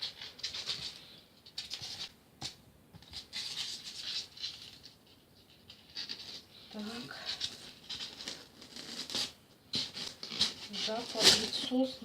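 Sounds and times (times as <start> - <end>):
polystyrene foam rustling: 6.0 - 12.0.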